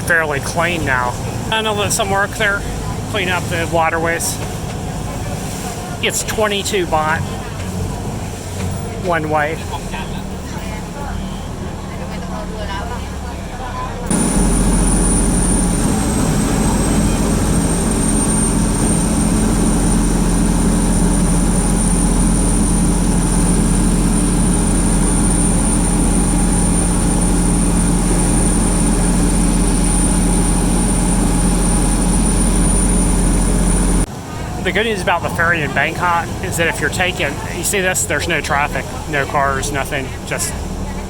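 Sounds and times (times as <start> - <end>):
diesel engine droning: 0.0 - 41.0
high engine whine: 0.0 - 41.0.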